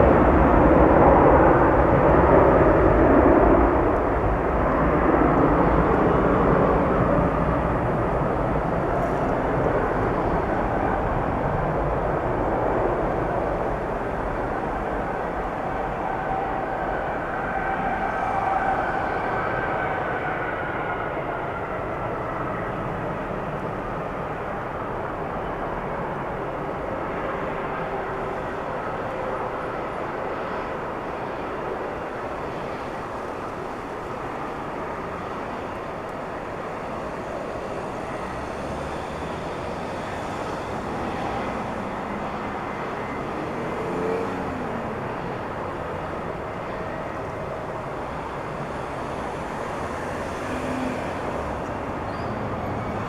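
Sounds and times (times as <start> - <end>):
jet engines rushing and whining: 0.0 - 53.0.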